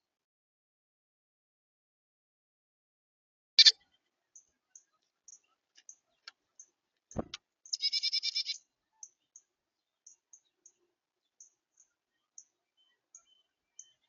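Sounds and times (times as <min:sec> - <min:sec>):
dull thump: 0:07.2 - 0:07.4
rapid buzzy chattering call: 0:07.7 - 0:08.6.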